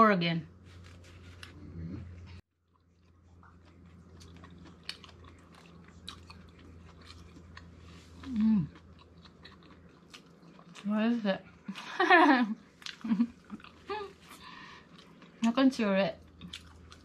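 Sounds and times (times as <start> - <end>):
steady low hum: 0.0 - 17.0
person humming mm: 1.5 - 2.2.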